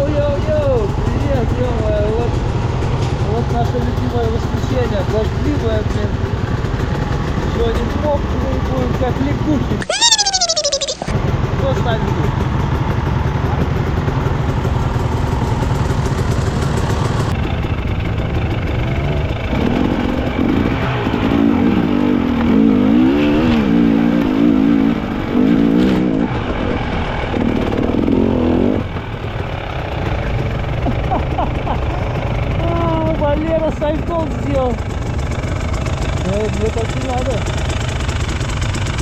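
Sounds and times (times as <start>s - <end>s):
dirt bike engines running: 0.0s - 39.0s
dirt bike revving: 18.4s - 33.6s.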